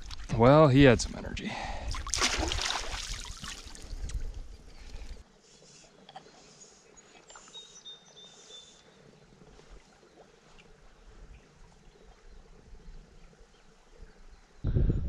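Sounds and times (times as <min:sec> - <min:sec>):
faint stream water: 0:00.0 - 0:14.6
small bird chirping: 0:07.0 - 0:08.9.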